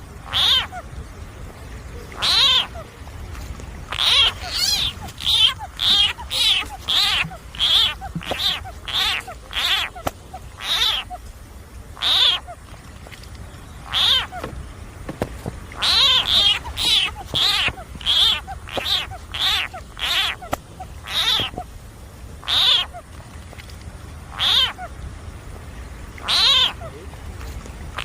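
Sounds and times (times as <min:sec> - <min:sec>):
frog calling: 0:00.0 - 0:01.1, 0:02.0 - 0:03.0, 0:03.8 - 0:11.3, 0:11.9 - 0:12.7, 0:13.4 - 0:14.6, 0:15.6 - 0:21.8, 0:22.4 - 0:23.1, 0:24.2 - 0:25.1, 0:26.2 - 0:27.1.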